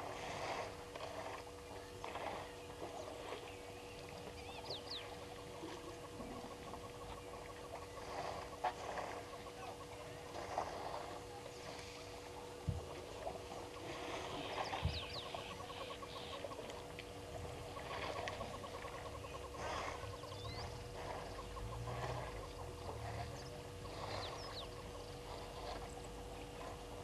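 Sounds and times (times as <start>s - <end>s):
steady electrical hum: 0.0s - 27.0s
birds chirping and trilling: 3.4s - 8.6s, 13.6s - 16.6s, 17.6s - 25.2s.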